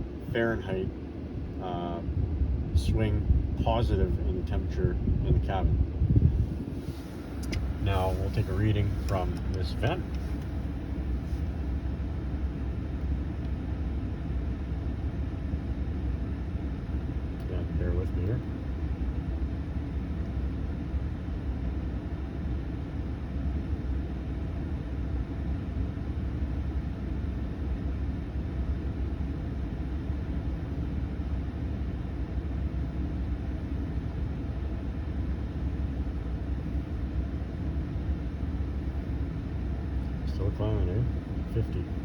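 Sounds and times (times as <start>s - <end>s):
air rushing from vents: 0.0s - 22.8s
truck engine idling: 6.3s - 42.0s.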